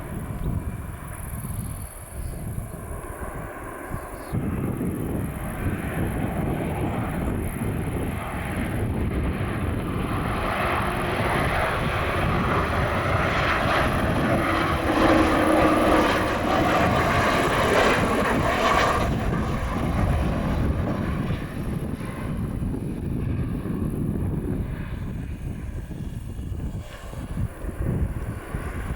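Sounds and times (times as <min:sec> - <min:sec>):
airliner passing close by: 0:00.0 - 0:28.9.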